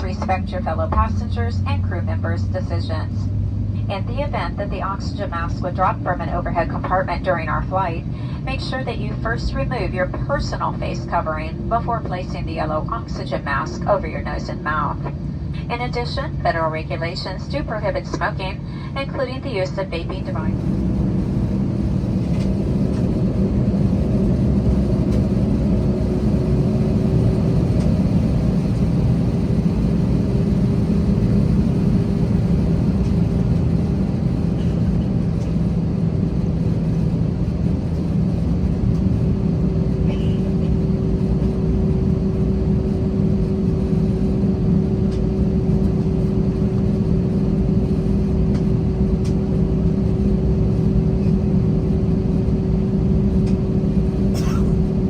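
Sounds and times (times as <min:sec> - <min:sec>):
jet engines idling: 0:00.0 - 0:55.0
steady cabin hum: 0:00.0 - 0:55.0.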